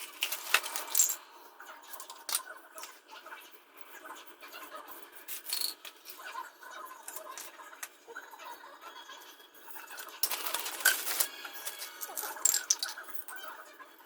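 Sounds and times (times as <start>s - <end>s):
parts scraping and clicking: 0.0s - 1.2s, 1.9s - 3.0s, 5.3s - 6.2s, 9.9s - 13.5s.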